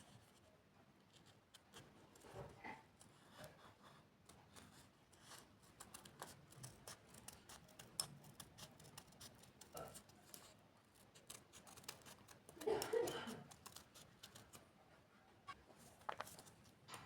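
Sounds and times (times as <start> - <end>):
paper ticks and rustles: 4.2 - 14.7, 15.5 - 17.0.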